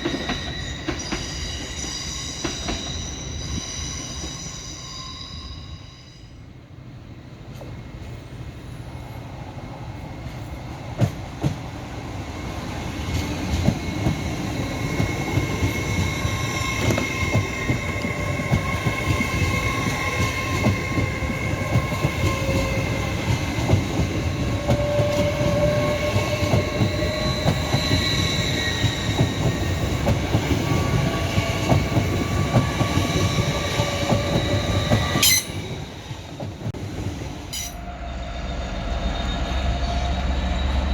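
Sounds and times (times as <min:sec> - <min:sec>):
train rumbling along track: 0:00.0 - 0:40.9.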